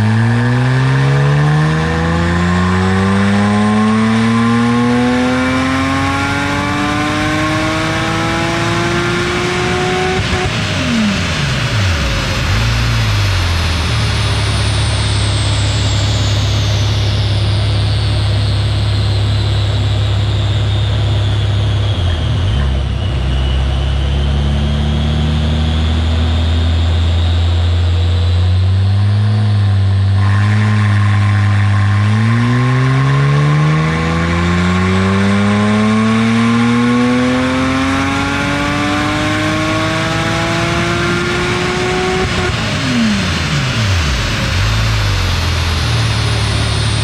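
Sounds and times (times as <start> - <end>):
car engine revving: 0.0 - 47.0.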